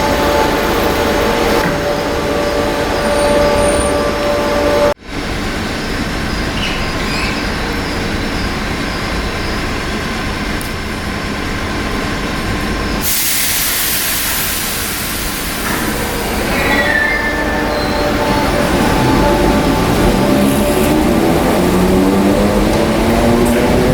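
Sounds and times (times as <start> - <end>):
train rumbling: 0.0 - 23.9
sudden hiss: 13.0 - 21.2.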